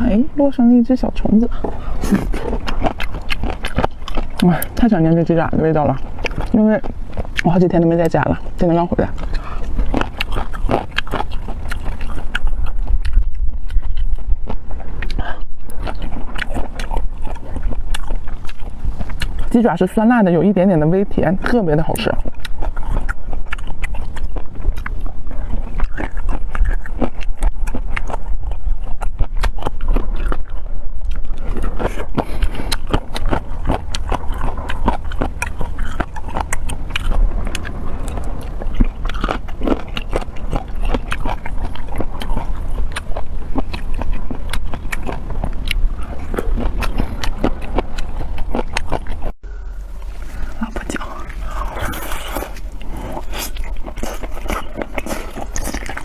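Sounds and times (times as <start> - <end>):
wet chewing and crunching: 0.0 - 56.0
steady low hum: 49.4 - 56.0.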